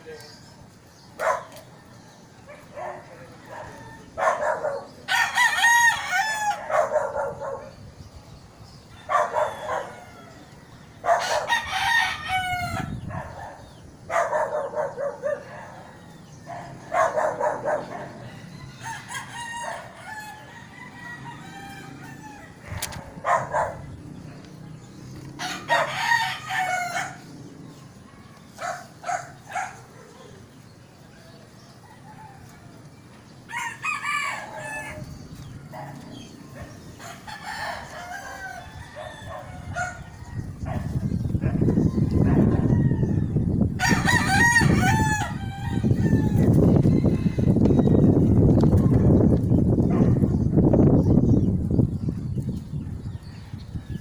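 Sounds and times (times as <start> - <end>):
rooster crowing: 5.1 - 6.8, 8.9 - 13.0, 18.1 - 22.7, 25.4 - 27.2, 33.5 - 35.2, 37.0 - 40.6, 41.7 - 48.3.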